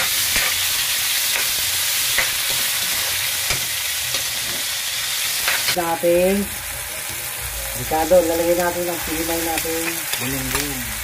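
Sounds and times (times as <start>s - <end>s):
metal spatula scraping wok: 0.0s - 4.8s
vegetables sizzling in hot oil: 0.0s - 11.0s.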